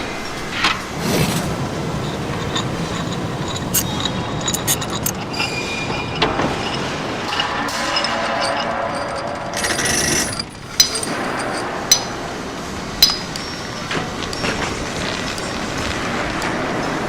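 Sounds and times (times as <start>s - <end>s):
mechanical hum: 0.0s - 17.0s
metal tools on engine parts: 0.3s - 16.7s
sharp metallic clinks: 1.5s - 12.3s, 12.9s - 15.8s.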